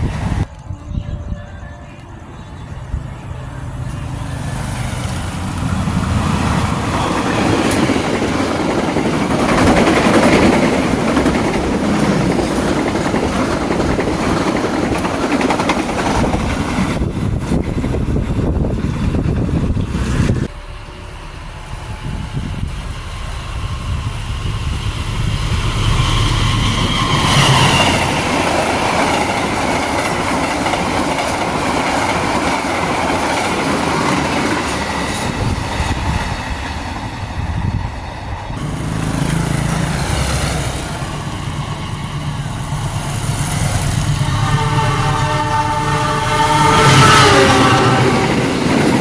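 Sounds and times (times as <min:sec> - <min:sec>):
train wheels clattering over rails: 0:04.2 - 0:20.5, 0:21.6 - 0:44.3
train horn: 0:44.0 - 0:49.0.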